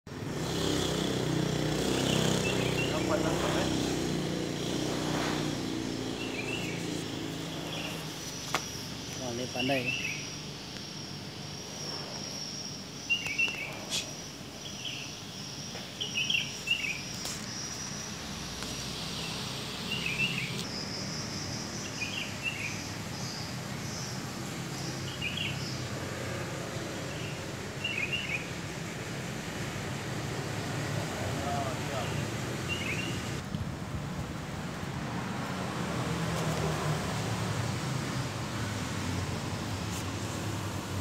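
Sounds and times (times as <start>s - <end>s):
high-pitched insect buzz: 0.2s - 27.5s.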